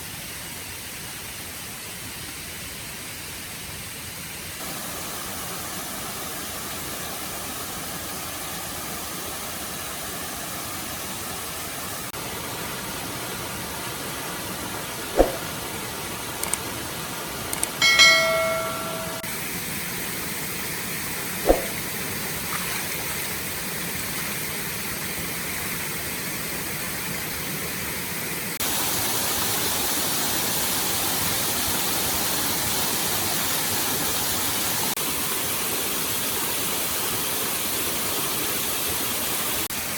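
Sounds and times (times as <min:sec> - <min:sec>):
short ringing clink: 0:17.6 - 0:19.3, 0:21.5 - 0:21.8.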